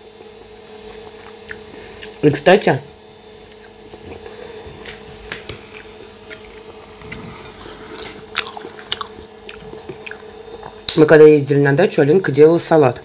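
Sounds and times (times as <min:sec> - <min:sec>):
steady low hum: 0:00.0 - 0:13.0
person chewing food: 0:00.9 - 0:02.2, 0:03.5 - 0:11.0.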